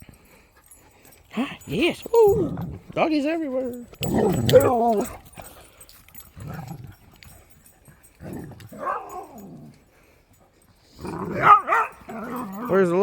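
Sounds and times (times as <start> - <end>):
dogs crying: 3.6 - 5.5, 8.7 - 9.7, 11.1 - 13.0.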